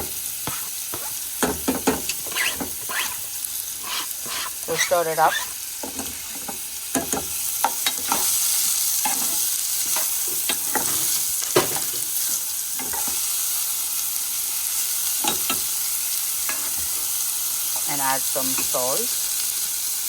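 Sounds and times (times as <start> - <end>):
spoon scraping a pan: 0.0 - 11.2, 16.5 - 17.1
food sizzling in hot oil: 0.0 - 20.0.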